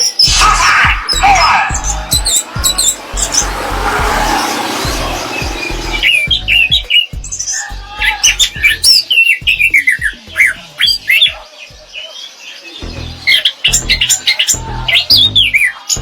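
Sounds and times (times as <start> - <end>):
thrush singing whistled notes: 0.0 - 16.0.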